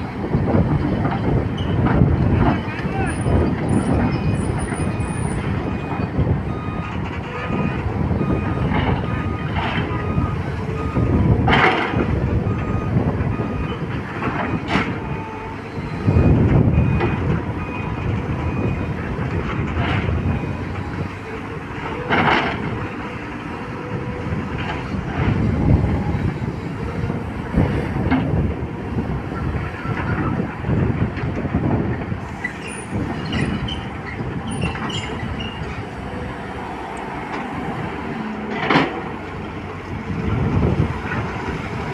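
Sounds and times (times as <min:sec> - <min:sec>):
excavator diesel engine rumbling: 0:00.0 - 0:41.9.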